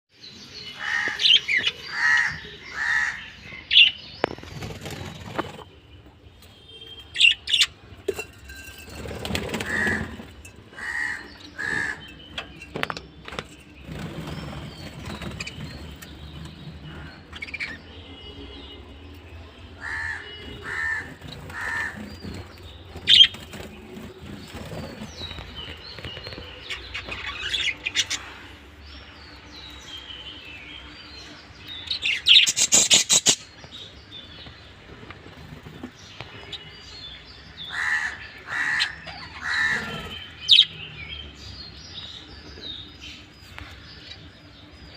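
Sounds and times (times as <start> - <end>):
wings fluttering: 4.2 - 5.8, 8.8 - 10.3
budgerigars chirping: 19.8 - 23.4, 31.9 - 33.9, 37.4 - 40.9.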